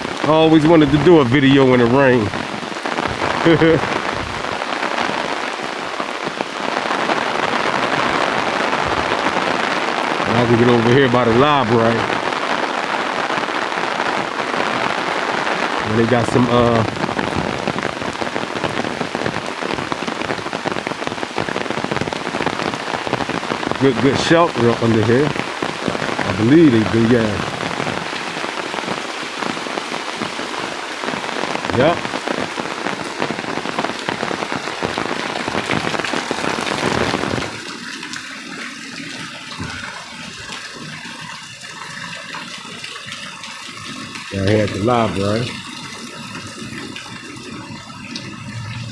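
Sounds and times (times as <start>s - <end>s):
heavy rain falling: 0.0s - 48.9s
running water: 0.0s - 48.9s
water drips: 15.3s - 48.9s.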